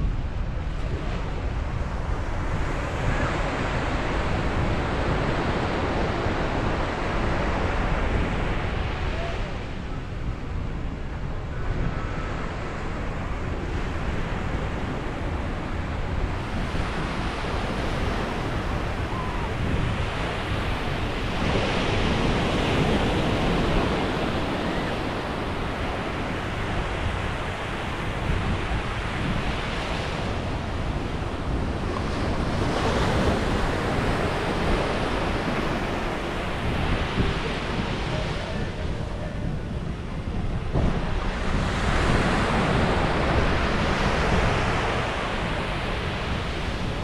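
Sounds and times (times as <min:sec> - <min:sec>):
ocean waves breaking on beach: 0:00.0 - 0:47.0
wind rumbling on microphone: 0:00.0 - 0:47.0.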